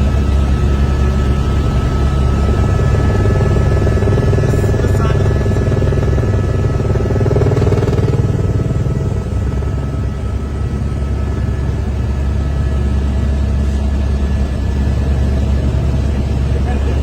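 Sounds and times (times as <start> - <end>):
helicopter engine and rotor drone: 0.0 - 17.0.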